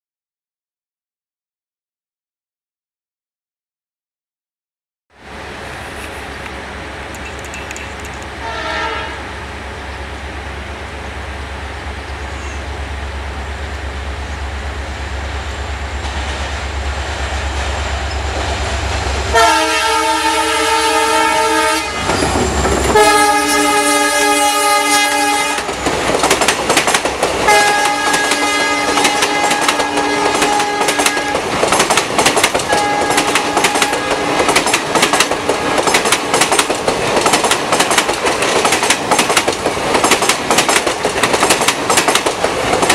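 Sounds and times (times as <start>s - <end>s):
diesel locomotive rumble: 5.2s - 42.9s
wheels clacking over rail joints: 5.8s - 8.5s, 22.0s - 23.2s, 25.3s - 42.9s
train horn blasts: 8.4s - 9.4s, 19.3s - 25.8s, 27.4s - 31.5s, 32.7s - 34.5s.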